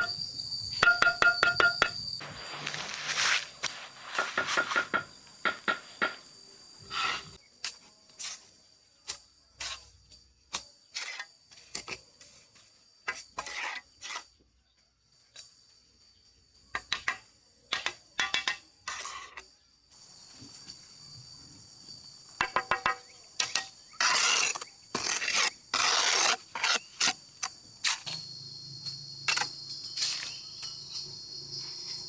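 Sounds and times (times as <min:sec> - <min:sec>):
insects chirring: 0:00.0 - 0:08.2, 0:15.1 - 0:32.0.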